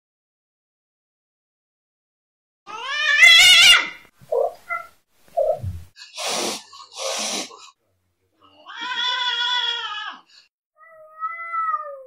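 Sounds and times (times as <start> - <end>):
cat meowing: 2.7 - 4.9, 8.4 - 10.2, 10.8 - 12.0
cat hissing: 3.2 - 7.7.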